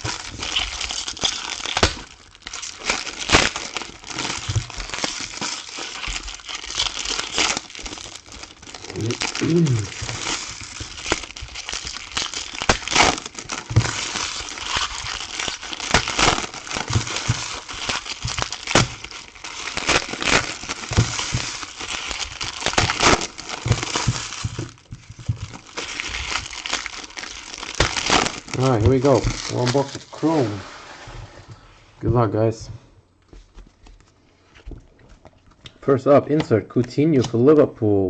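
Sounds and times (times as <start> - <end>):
plastic wrapping crinkling: 0.0 - 30.4.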